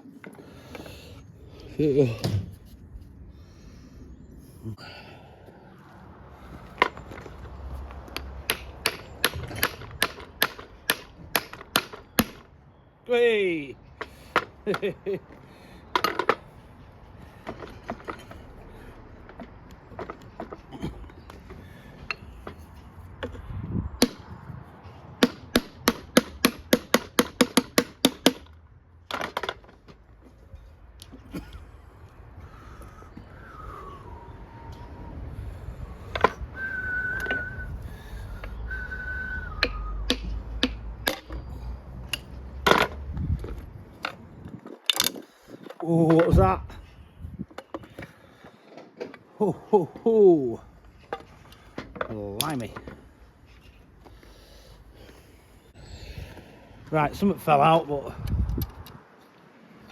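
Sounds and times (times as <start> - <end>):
sharp metallic taps: 8.1 - 12.5, 25.2 - 28.6, 39.6 - 41.4.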